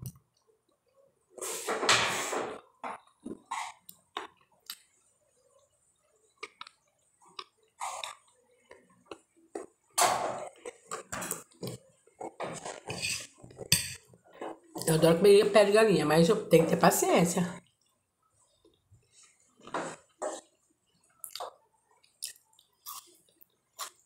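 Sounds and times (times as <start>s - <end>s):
wet chewing mouth sounds: 21.2s - 24.0s.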